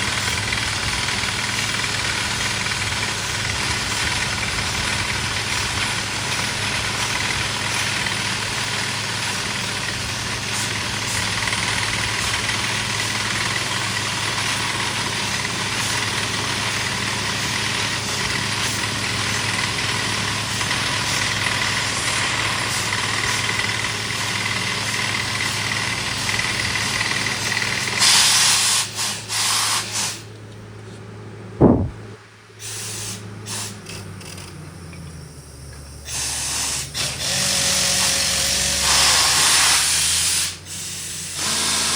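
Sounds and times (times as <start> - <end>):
drilling rig engine running: 0.0 - 41.9
air hissing: 27.8 - 30.3, 31.6 - 34.1, 36.0 - 41.9
sharp thud: 31.6 - 32.1.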